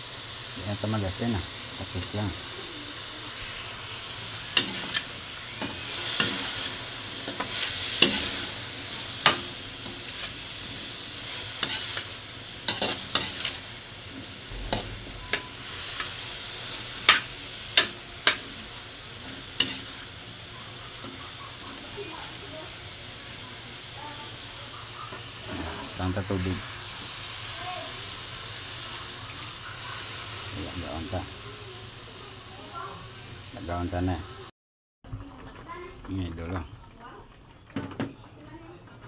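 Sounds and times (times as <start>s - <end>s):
meat sizzling in oil: 0.0s - 34.5s, 35.1s - 39.0s
utensil scraping a wok: 0.8s - 31.4s.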